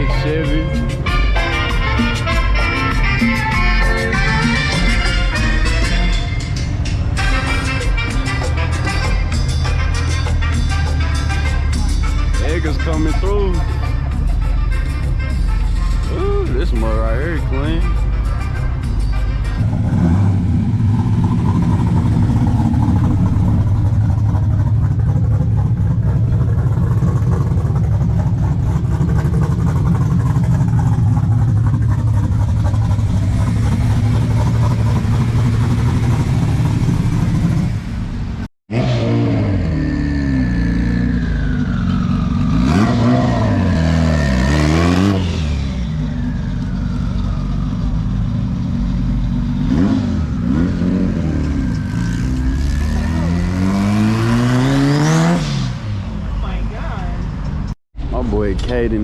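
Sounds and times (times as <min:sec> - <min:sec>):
car engines rumbling: 0:00.0 - 0:59.0
engine revving: 0:19.6 - 0:56.1.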